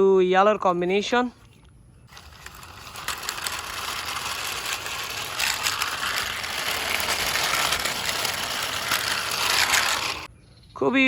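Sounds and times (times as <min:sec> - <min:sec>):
toy wheels whirring and ratcheting: 0:02.1 - 0:10.3.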